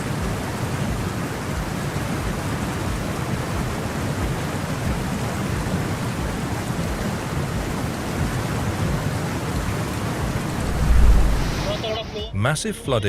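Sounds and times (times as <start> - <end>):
rushing floodwater: 0.0 - 13.0
deep unsteady rumble: 10.5 - 11.7.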